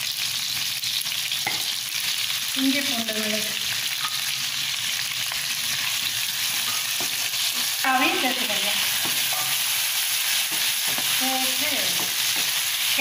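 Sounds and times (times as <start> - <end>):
vegetables sizzling in hot oil: 0.0 - 13.0
spatula stirring and scraping: 4.0 - 13.0.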